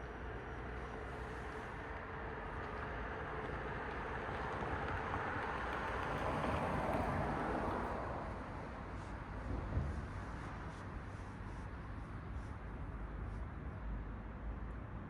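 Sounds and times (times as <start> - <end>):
car passing by: 4.4 - 10.0.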